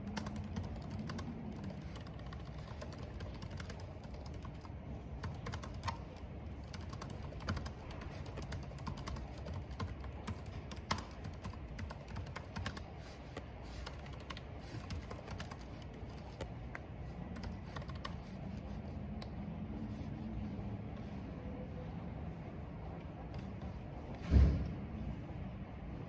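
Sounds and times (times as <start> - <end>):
keyboard typing clicks: 0.0 - 19.3.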